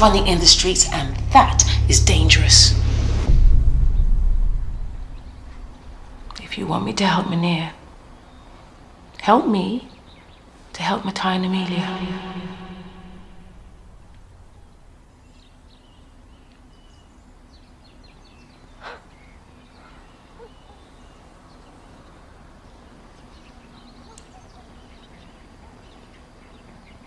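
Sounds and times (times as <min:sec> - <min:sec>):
low steady hum: 0:00.0 - 0:16.7
brief sharp sound: 0:01.1 - 0:06.4, 0:11.6 - 0:14.5
faint bird chirps: 0:14.5 - 0:27.0.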